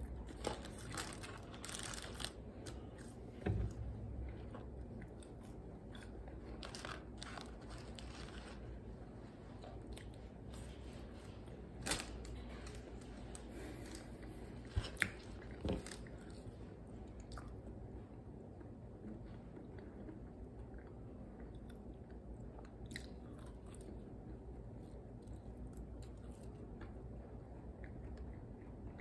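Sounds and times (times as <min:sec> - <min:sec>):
person chewing crunchy fries: 0:00.0 - 0:03.3, 0:04.1 - 0:08.9, 0:11.8 - 0:17.6, 0:19.5 - 0:27.0
steady low hum: 0:00.0 - 0:29.0.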